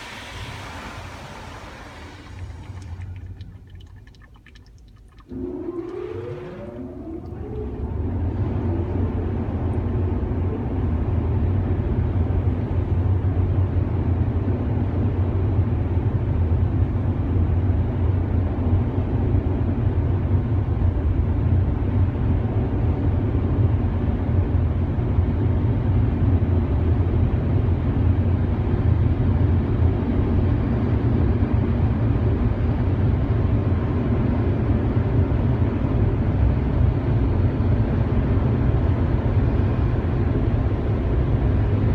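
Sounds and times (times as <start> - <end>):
car wash equipment running: 0.0 - 15.0, 27.5 - 41.9.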